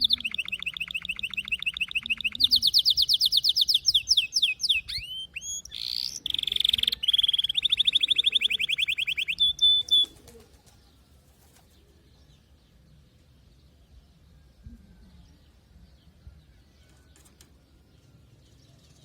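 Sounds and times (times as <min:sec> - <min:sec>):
canary singing: 0:00.0 - 0:10.5.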